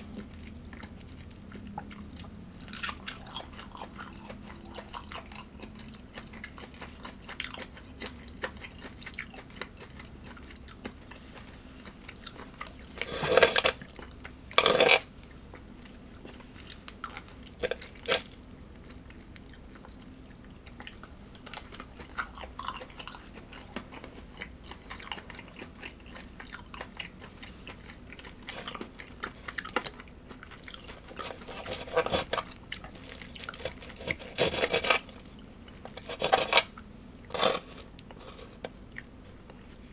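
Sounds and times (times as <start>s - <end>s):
person chewing food: 0.0s - 39.9s
small crunches: 23.8s - 39.9s.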